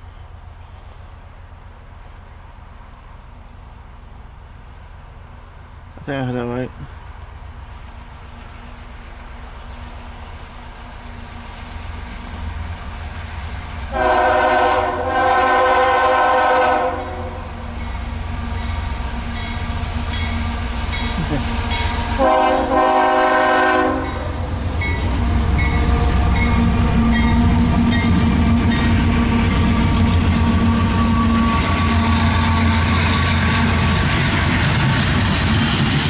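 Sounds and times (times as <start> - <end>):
locomotive engine drone: 0.0 - 36.0
locomotive air horn blasts: 13.9 - 17.4, 21.6 - 24.3.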